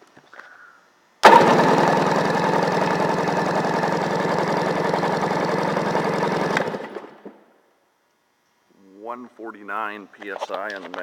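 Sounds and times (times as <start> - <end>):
engine cranked by starter: 1.2 - 7.3.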